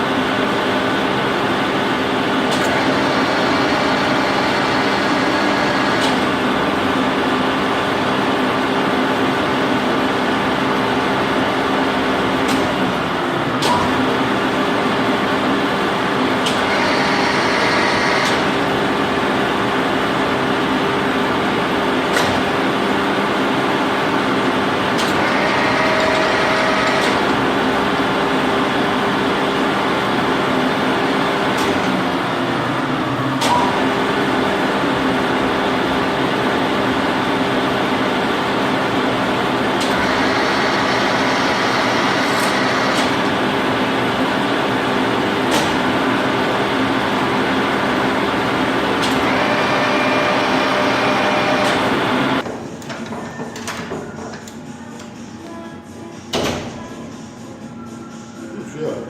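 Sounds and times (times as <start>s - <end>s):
milling machine droning: 0.0s - 52.4s.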